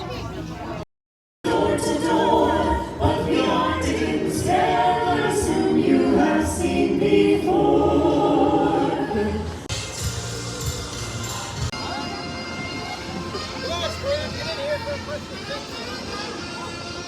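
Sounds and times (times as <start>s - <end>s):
choir singing a cappella: 1.4s - 9.7s.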